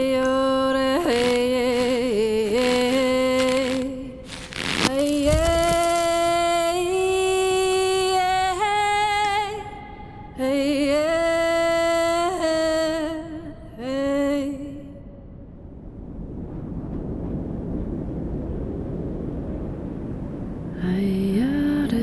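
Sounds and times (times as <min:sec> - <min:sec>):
woman singing wordless held notes: 0:00.0 - 0:14.9, 0:20.8 - 0:22.0.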